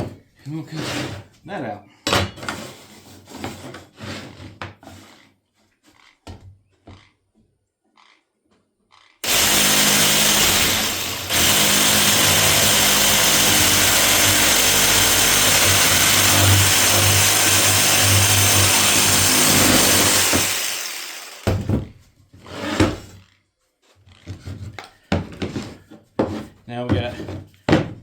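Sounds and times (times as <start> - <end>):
electric power saw cutting wood: 9.2 - 21.7.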